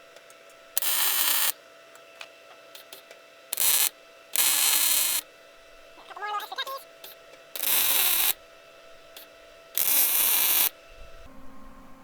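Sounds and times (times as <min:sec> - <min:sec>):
welding arc crackle: 0:00.7 - 0:01.6, 0:02.7 - 0:05.3, 0:05.9 - 0:08.4, 0:09.1 - 0:10.9.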